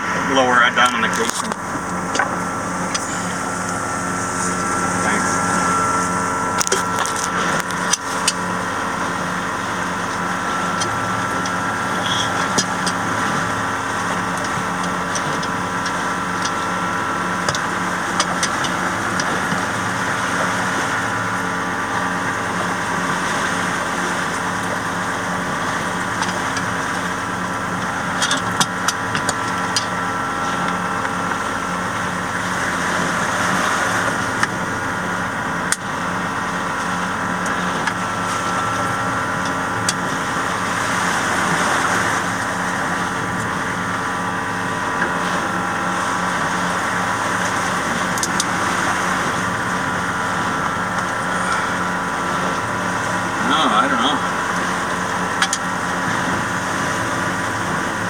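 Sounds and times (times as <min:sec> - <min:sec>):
engine droning: 0:00.0 - 0:58.0.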